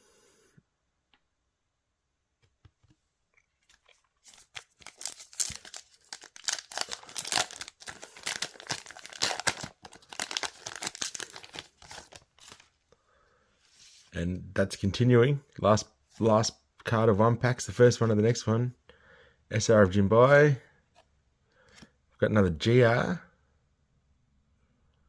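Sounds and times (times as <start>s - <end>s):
wrapper being torn and crinkled: 4.2s - 12.7s.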